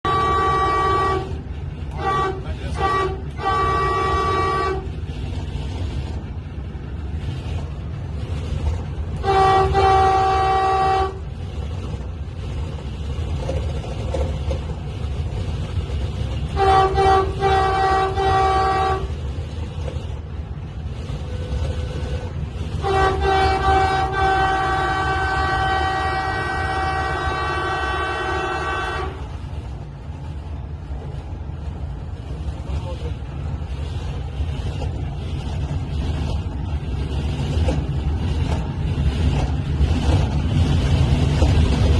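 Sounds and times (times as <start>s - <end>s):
train horn blasts: 0.0s - 5.0s, 9.2s - 11.3s, 16.5s - 19.2s, 21.2s - 29.3s
train rumbling at speed: 0.0s - 41.9s.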